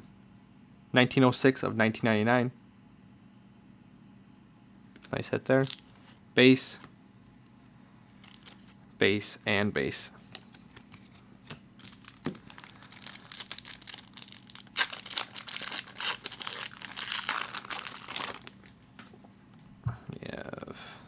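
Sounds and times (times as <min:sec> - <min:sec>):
wrapper tearing and crinkling: 0:08.2 - 0:08.6, 0:11.8 - 0:18.8.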